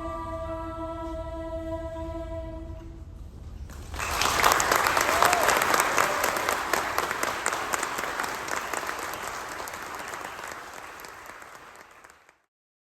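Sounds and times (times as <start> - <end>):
audience applauding: 3.7 - 12.5.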